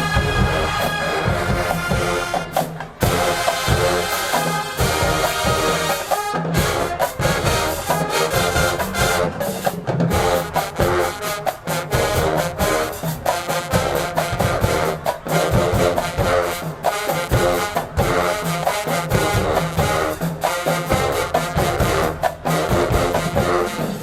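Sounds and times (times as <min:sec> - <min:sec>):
drumline strokes: 0:00.0 - 0:24.0
marching band brass chords: 0:00.0 - 0:24.0.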